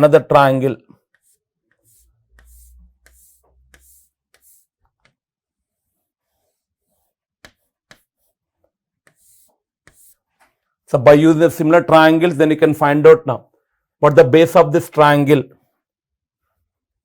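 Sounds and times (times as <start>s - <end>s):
pen scratching while writing: 1.0s - 10.6s.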